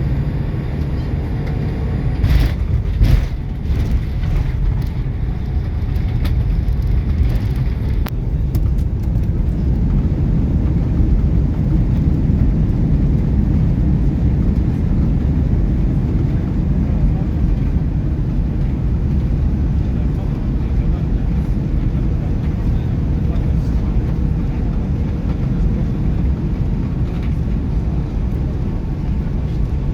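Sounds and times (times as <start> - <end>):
airliner engine rumble in cabin: 0.0 - 29.9.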